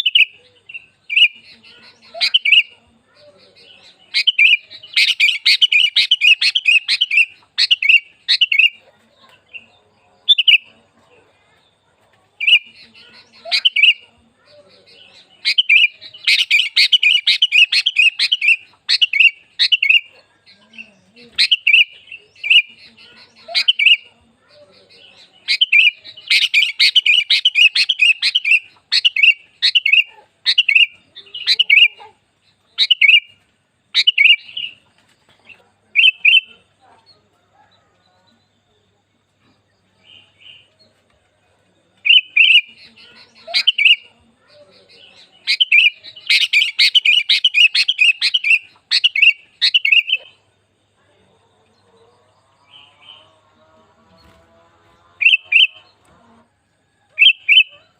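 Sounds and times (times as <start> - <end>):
bird chattering calls: 0.0 - 2.7, 3.5 - 8.8, 12.4 - 14.1, 14.8 - 20.1, 21.3 - 24.1, 25.0 - 33.3, 36.0 - 36.6, 42.0 - 44.1, 44.8 - 50.5, 55.2 - 55.9, 57.2 - 57.9.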